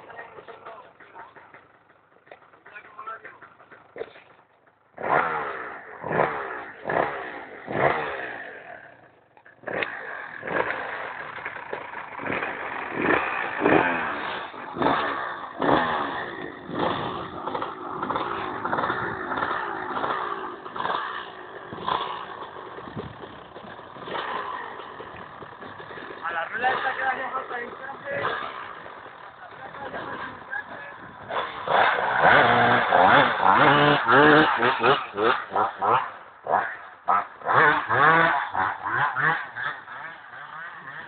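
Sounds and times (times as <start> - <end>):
motocross bike engines revving: 0.0 - 41.0.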